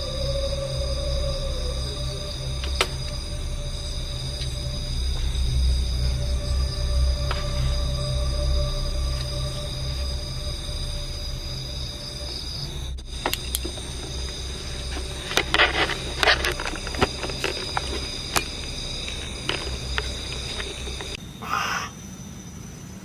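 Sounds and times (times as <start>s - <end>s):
low rumble: 0.0s - 21.2s
insect-like trilling: 0.0s - 22.2s
sharp clicks and crackles: 14.8s - 21.2s.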